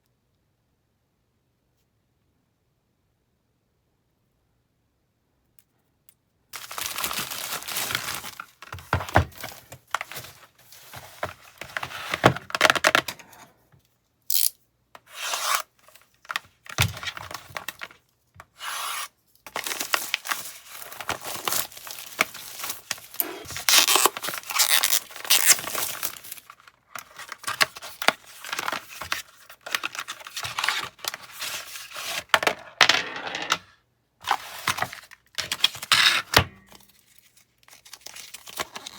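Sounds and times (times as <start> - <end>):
plastic packaging crinkling and tearing: 6.6 - 13.0, 19.5 - 32.3, 36.7 - 38.9.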